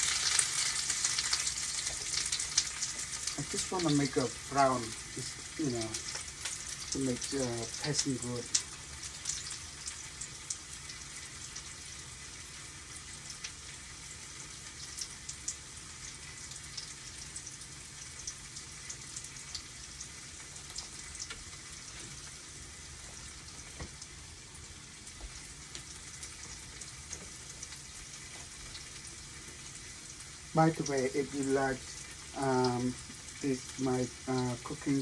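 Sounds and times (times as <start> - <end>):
small pops and crackles: 0.0 - 3.9, 5.2 - 11.7, 20.4 - 22.4, 25.0 - 30.3
food sizzling in a pan: 0.0 - 35.0.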